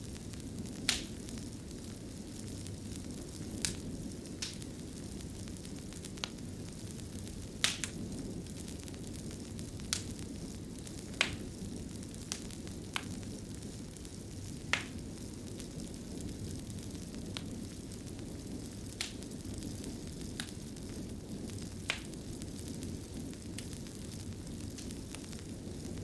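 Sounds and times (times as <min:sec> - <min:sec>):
fire crackling and popping: 0:00.0 - 0:26.0
low rumble of fire: 0:00.0 - 0:26.0.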